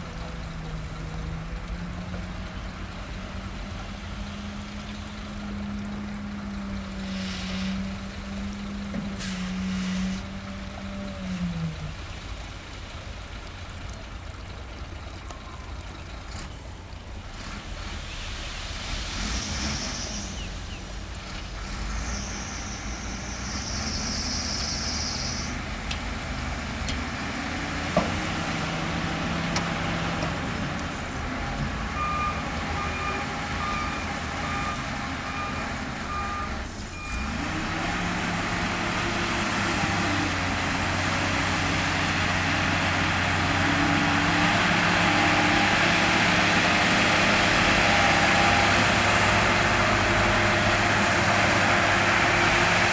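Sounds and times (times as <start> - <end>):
heavy diesel machinery running: 0.0 - 52.9
short high hisses: 18.1 - 20.8
reversing alarm beeping: 31.9 - 37.4.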